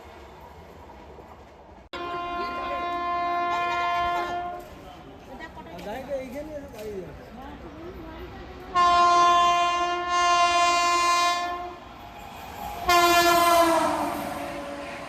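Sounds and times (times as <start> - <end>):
train horn blasts: 1.9 - 4.8, 8.7 - 11.8, 12.9 - 15.0
train rushing past: 7.6 - 15.0.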